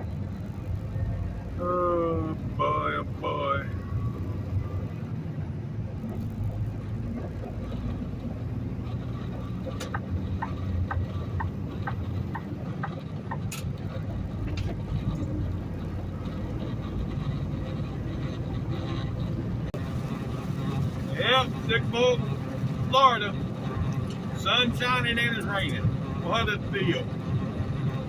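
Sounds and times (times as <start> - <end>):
truck engine and road drone: 0.0 - 28.0
evenly spaced ticks: 8.8 - 19.3.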